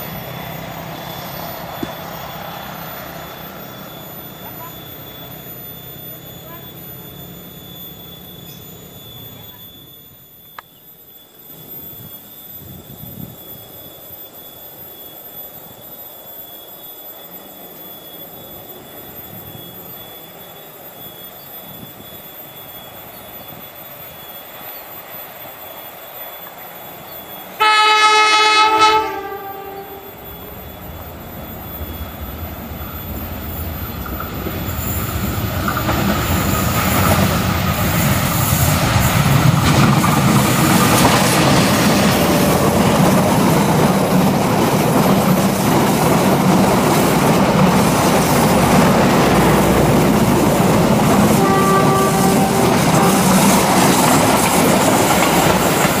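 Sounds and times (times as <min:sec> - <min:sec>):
train engine: 0:00.0 - 0:56.0
train wheels on rails: 0:00.0 - 0:56.0
locomotive horn blast: 0:27.6 - 0:30.2, 0:49.6 - 0:53.7.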